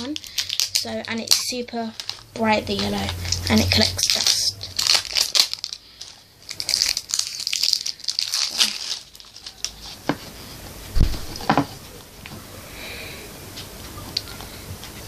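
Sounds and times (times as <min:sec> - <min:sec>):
plastic packaging crinkling: 0:00.0 - 0:11.7
dull thump: 0:10.9 - 0:11.7.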